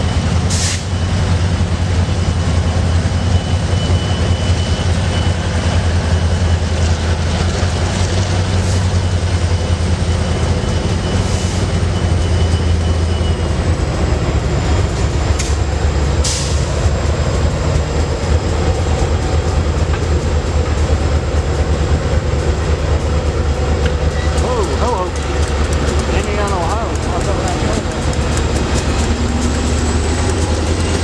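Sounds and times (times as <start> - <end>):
freight train wheels rumbling: 0.0 - 31.0
sharp clicks of train wheels: 14.8 - 31.0.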